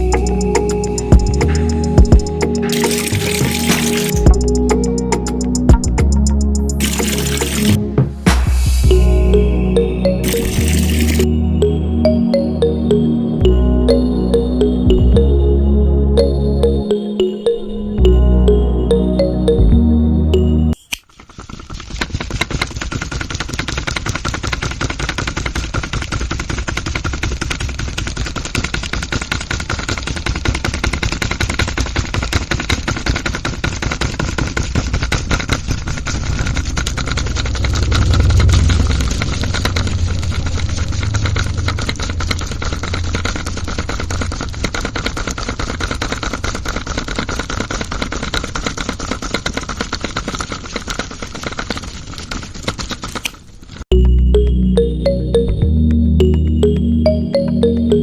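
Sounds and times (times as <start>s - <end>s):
small motor rapid rattling: 21.1s - 53.8s.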